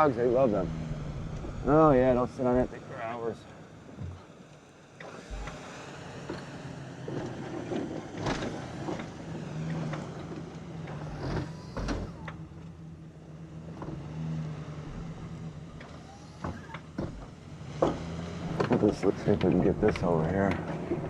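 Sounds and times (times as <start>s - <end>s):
sharp knocks and clunks: 4.0s - 4.3s, 5.0s - 5.7s, 14.9s - 21.0s
tractor engine running: 5.0s - 21.0s.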